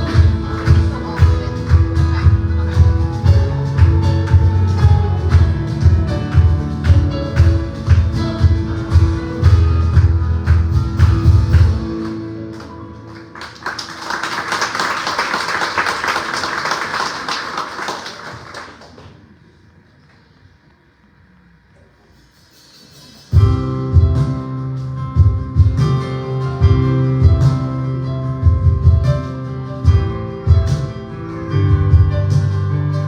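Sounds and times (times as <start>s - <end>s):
live band music with heavy bass: 0.0s - 13.2s, 23.3s - 33.0s
congregation applauding: 0.0s - 19.6s.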